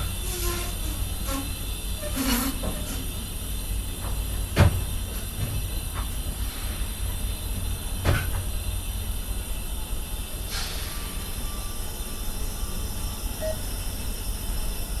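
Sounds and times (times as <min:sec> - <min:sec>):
train sharp knocks: 0:00.0 - 0:09.1
train rumbling past: 0:00.0 - 0:15.0.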